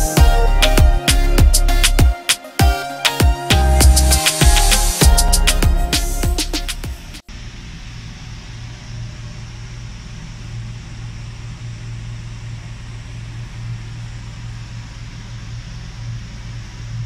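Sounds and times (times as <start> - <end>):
air hissing: 3.5 - 8.9.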